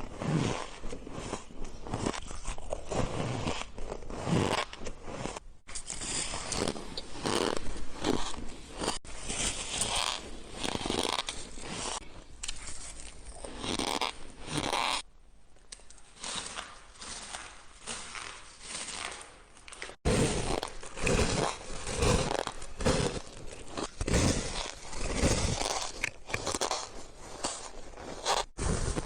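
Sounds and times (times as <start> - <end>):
shaved ice crunching: 16.2 - 29.0.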